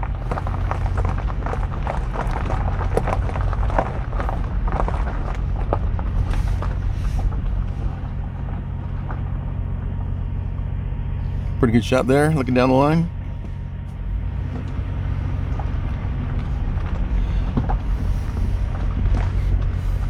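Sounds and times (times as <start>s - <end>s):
small rattles and clicks: 0.0s - 10.2s
car engine and road rumble: 0.0s - 20.0s.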